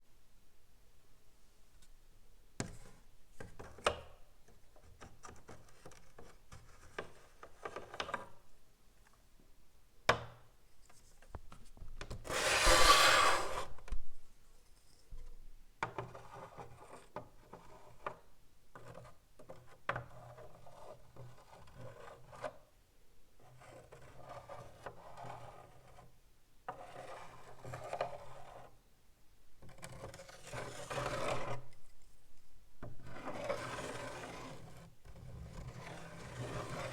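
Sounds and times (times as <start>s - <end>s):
chalk scratching on blackboard: 12.3s - 13.8s.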